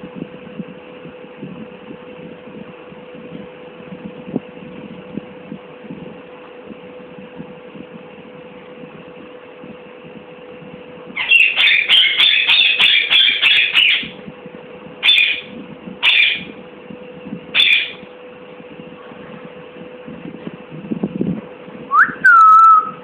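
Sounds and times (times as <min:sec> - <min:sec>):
low steady hum: 0:00.0 - 0:23.0
parrot squawking: 0:11.2 - 0:14.2, 0:15.0 - 0:16.5, 0:17.5 - 0:18.0.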